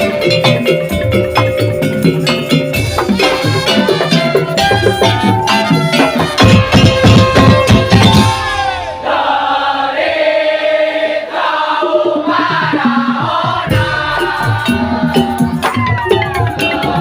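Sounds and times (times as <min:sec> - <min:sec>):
wavering held melody: 0:00.0 - 0:08.4
drum and percussion: 0:00.0 - 0:09.2, 0:11.3 - 0:17.0.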